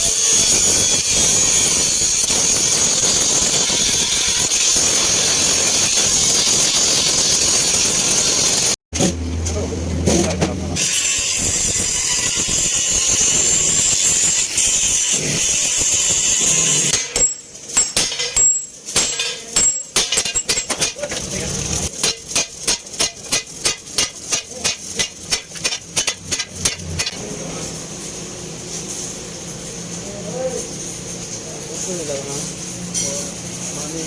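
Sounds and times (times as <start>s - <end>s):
hammer striking metal: 16.8s - 21.3s, 21.9s - 27.2s.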